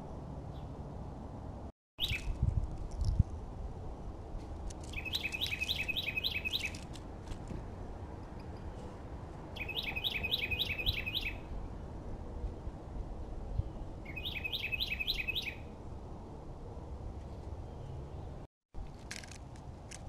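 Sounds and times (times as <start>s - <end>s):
songbird singing: 0.5s - 0.8s, 2.0s - 2.5s, 4.7s - 6.9s, 8.2s - 11.7s, 12.6s - 15.8s, 17.2s - 18.5s.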